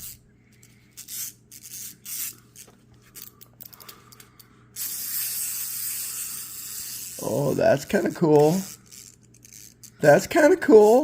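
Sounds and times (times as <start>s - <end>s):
plastic toy crank clicking: 1.0s - 2.3s, 4.8s - 11.0s.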